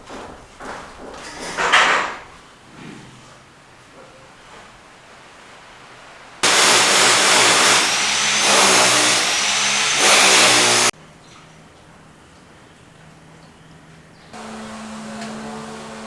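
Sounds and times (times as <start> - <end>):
loud machine running: 6.4 - 10.9.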